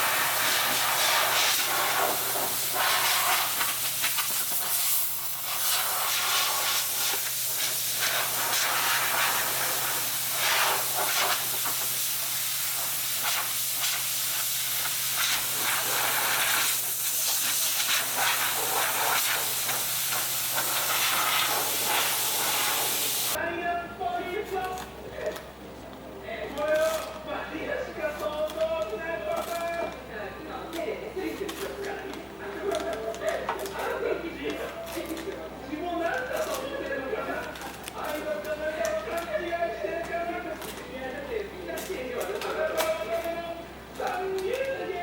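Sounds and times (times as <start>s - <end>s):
paint spray gun hissing: 0.0s - 23.4s.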